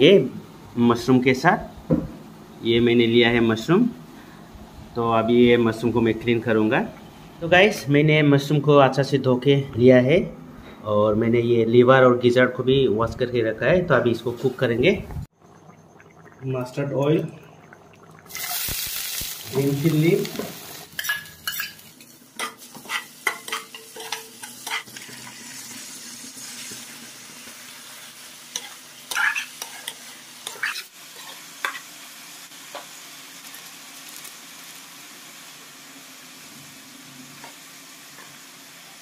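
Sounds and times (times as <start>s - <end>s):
food sizzling in oil: 15.5s - 39.0s
spatula scraping a pan: 21.0s - 25.4s, 28.5s - 31.9s.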